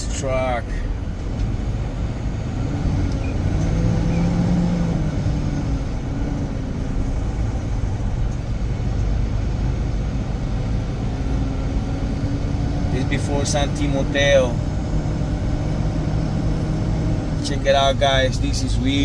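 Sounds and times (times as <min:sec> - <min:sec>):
low engine hum: 0:00.0 - 0:19.0
vehicle road rumble from inside: 0:00.0 - 0:19.0.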